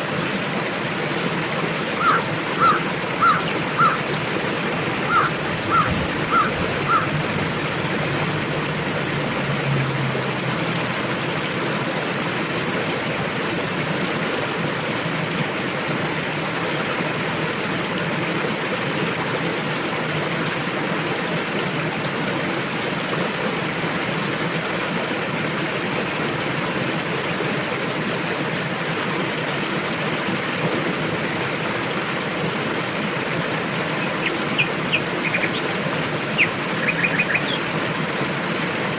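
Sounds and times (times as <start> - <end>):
river water rushing: 0.0 - 38.9
bird chirps: 34.0 - 37.7.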